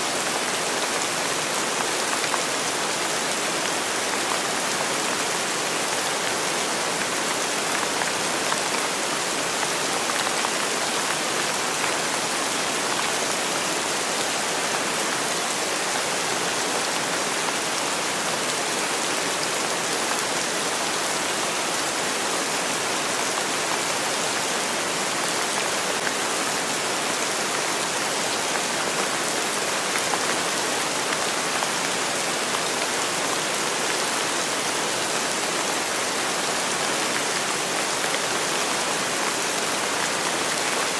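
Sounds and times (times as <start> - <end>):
steady rainfall hiss: 0.0 - 40.9.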